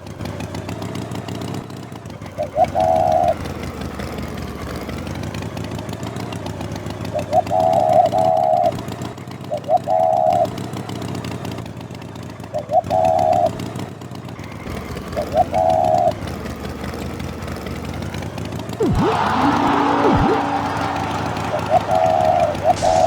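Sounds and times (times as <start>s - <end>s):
vehicle engine running: 0.0s - 23.0s
vehicle horn beeping: 18.8s - 23.0s.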